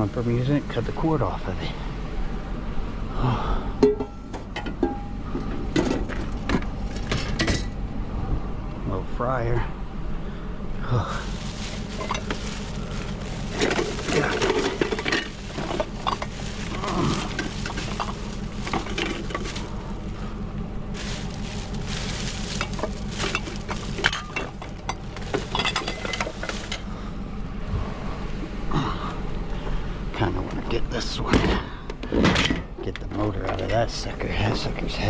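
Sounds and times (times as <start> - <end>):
steady low hum: 0.0 - 35.0
metal parts clinking and clanking: 5.7 - 7.8, 11.2 - 20.2, 21.0 - 26.9.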